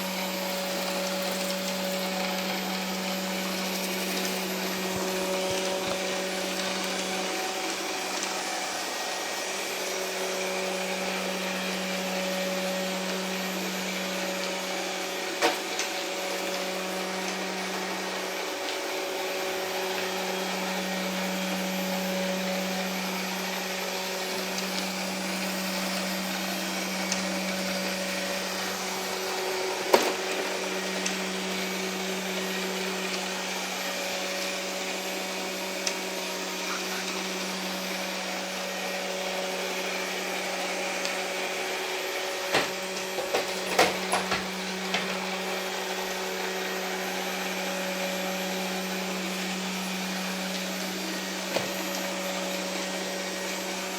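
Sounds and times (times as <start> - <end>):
robot vacuum motor hum: 0.0 - 53.9.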